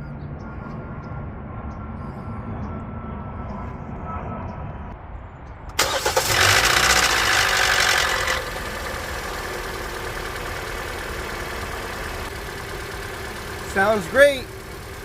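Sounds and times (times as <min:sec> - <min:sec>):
car engine starting and idling: 0:05.7 - 0:15.0.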